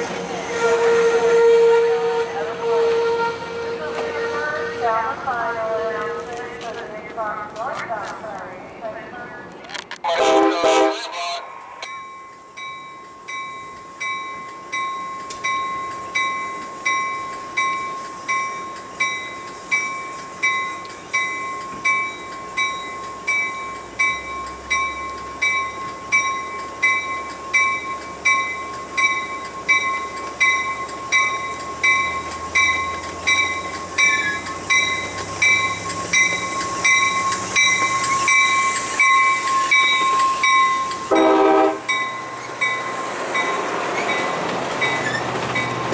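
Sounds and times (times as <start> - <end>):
train rumble: 0.0 - 45.9
crossing warning bell ringing: 10.2 - 45.9.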